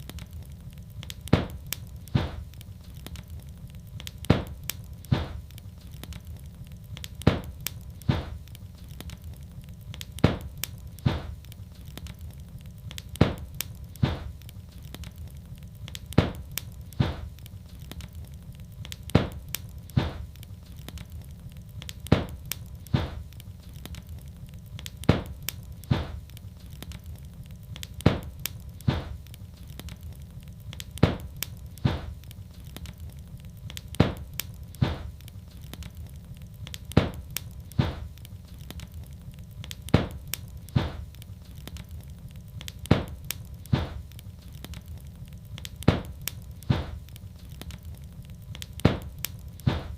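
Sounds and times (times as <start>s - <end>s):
wood fire crackling: 0.0s - 49.9s
sharp pops: 1.1s - 2.5s, 4.1s - 5.4s, 7.2s - 8.4s, 10.1s - 11.4s, 13.2s - 15.0s, 16.0s - 17.4s, 19.0s - 20.3s, 22.0s - 23.3s, 25.0s - 26.3s, 27.8s - 29.2s, 30.9s - 32.2s, 33.8s - 35.8s, 36.8s - 38.8s, 39.7s - 41.7s, 42.8s - 44.8s, 45.6s - 47.8s, 48.6s - 49.9s.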